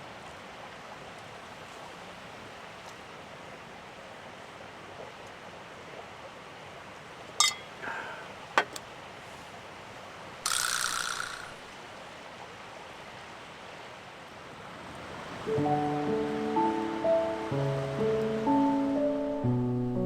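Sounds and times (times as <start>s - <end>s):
rain falling: 11.2s - 19.4s.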